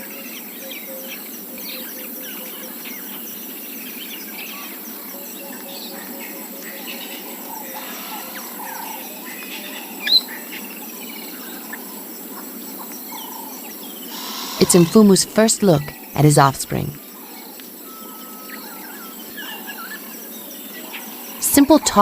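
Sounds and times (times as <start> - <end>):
insects buzzing: 0.4 - 15.2.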